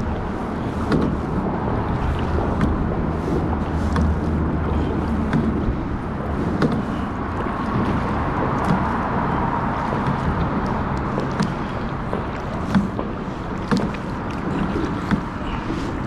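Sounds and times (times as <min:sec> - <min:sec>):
kayak paddling through water: 0:00.0 - 0:16.0
wind on microphone: 0:00.0 - 0:16.0
light knocks: 0:06.6 - 0:07.1.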